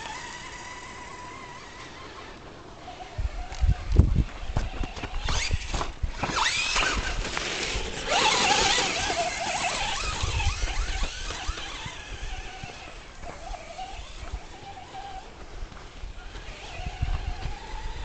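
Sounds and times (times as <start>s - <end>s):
toy truck electric motors whining: 0.0s - 18.0s.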